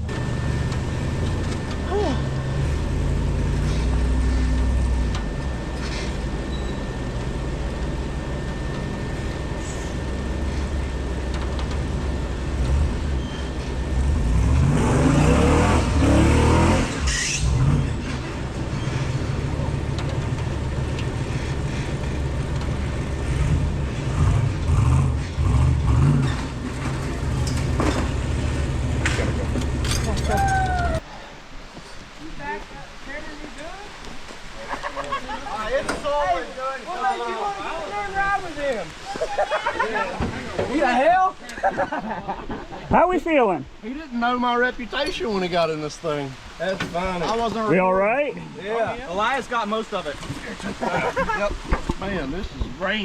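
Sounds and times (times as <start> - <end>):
off-road vehicle engine revving: 0.0 - 31.0.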